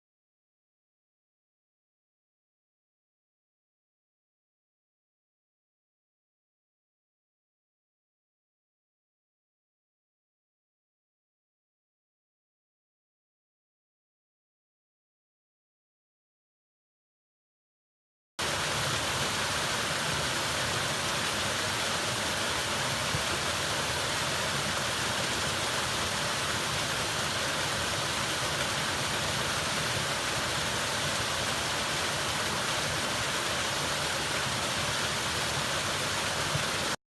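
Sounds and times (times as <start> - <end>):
falling water rushing: 18.4 - 37.0.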